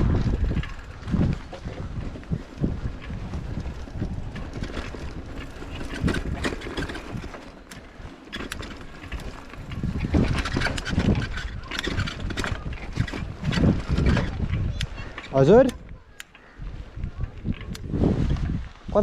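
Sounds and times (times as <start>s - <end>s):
wind buffeting microphone: 0.0s - 19.0s
scattered clicks: 4.4s - 16.5s.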